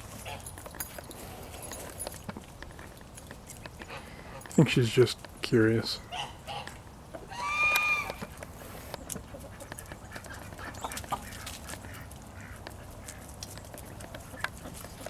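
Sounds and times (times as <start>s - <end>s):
poultry calling softly: 6.1s - 13.2s.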